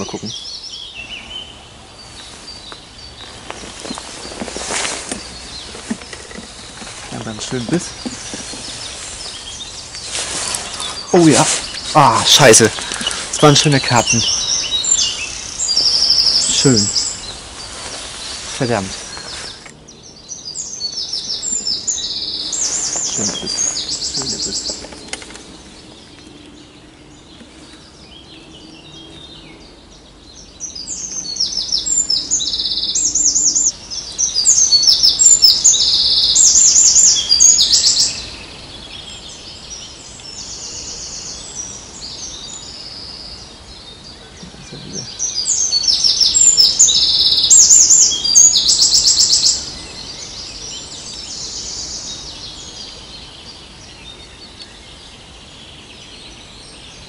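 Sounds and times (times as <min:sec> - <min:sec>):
faint birdsong: 0:00.0 - 0:57.0
outdoor background noise: 0:00.0 - 0:57.0
songbird trilling loudly: 0:10.7 - 0:17.2, 0:44.2 - 0:49.7.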